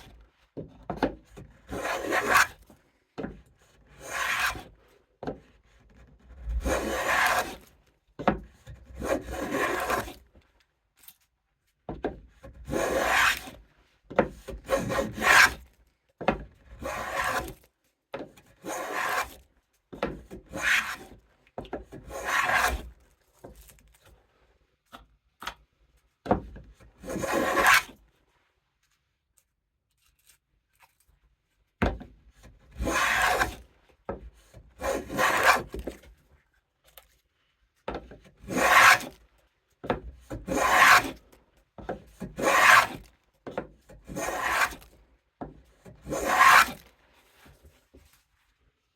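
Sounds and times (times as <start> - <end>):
hand plane shaving wood: 1.6 - 2.6, 3.9 - 4.7, 6.6 - 7.7, 9.0 - 10.2, 12.6 - 13.6, 14.5 - 15.6, 16.7 - 17.6, 18.6 - 19.4, 20.0 - 21.1, 21.9 - 22.9, 27.0 - 28.0, 32.7 - 33.7, 34.8 - 36.0, 38.4 - 39.2, 40.3 - 41.3, 42.1 - 43.1, 44.0 - 45.0, 45.8 - 46.9.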